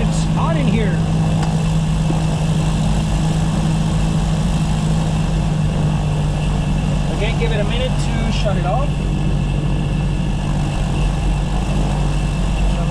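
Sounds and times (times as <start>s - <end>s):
aircraft piston engines idling: 0.0s - 12.9s.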